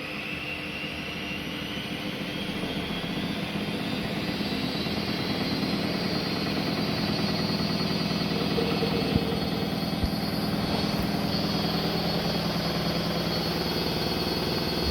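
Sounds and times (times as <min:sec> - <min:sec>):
washing machine drum spinning: 0:03.1 - 0:14.9.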